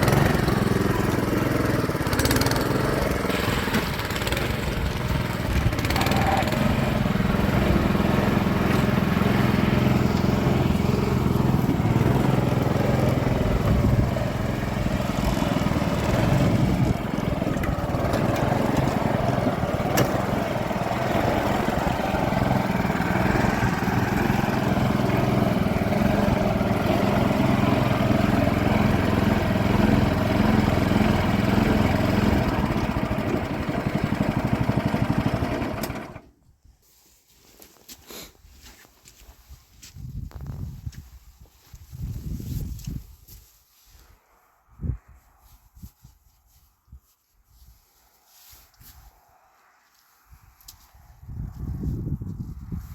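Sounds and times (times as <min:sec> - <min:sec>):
small engine running: 0:00.0 - 0:36.3.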